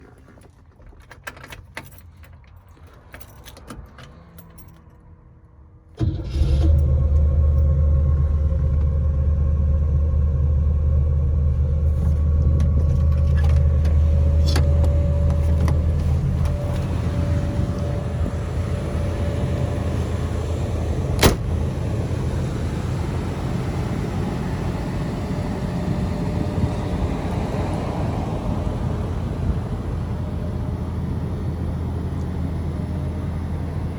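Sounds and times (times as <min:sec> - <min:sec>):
keys jingling: 0:00.8 - 0:05.0
car engine starting and idling: 0:05.8 - 0:33.9.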